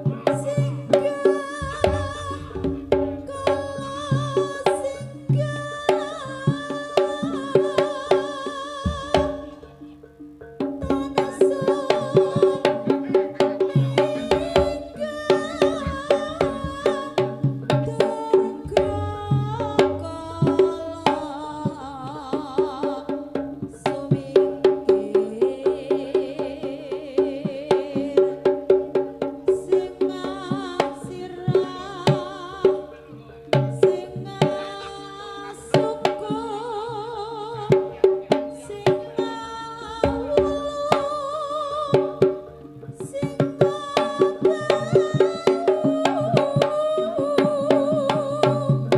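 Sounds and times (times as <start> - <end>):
wavering high melody: 0.0 - 22.6
hand drum strokes: 0.0 - 48.9
ringing pitched percussion: 0.1 - 22.4.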